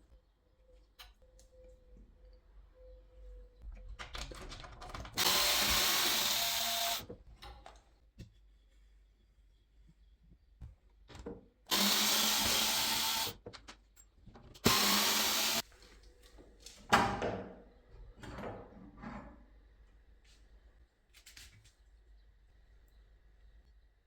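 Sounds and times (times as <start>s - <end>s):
power drill running: 5.2s - 7.0s, 11.7s - 13.4s, 14.6s - 15.6s.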